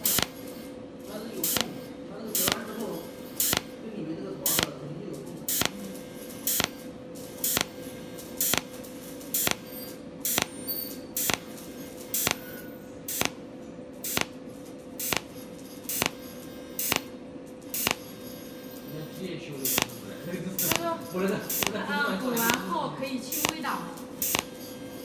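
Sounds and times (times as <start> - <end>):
welding pulse snaps: 0.0 - 0.4, 1.4 - 2.8, 3.4 - 3.8, 4.4 - 4.8, 5.5 - 6.8, 7.4 - 7.8, 8.4 - 10.6, 11.2 - 13.4, 14.0 - 14.4, 15.0 - 16.2, 16.8 - 17.1, 17.7 - 18.0, 19.6 - 20.0, 20.6 - 20.9, 21.5 - 22.7, 23.3 - 24.5
welding machine hum: 0.0 - 25.0.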